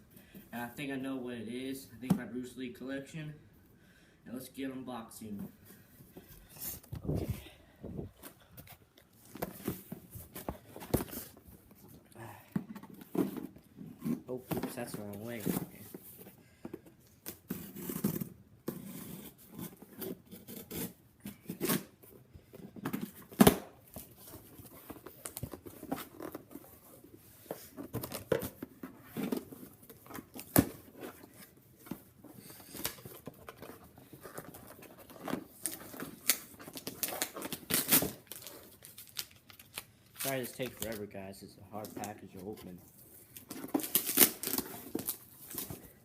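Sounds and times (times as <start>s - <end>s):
packaging tearing and crinkling: 34.2s - 41.1s, 43.3s - 46.0s.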